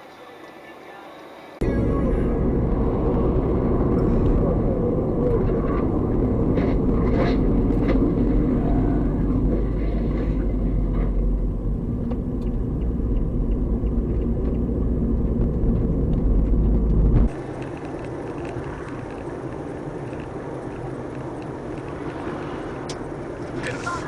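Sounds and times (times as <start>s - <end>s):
hissy vehicle noise: 0.0s - 24.0s
car road and engine rumble: 1.5s - 24.0s.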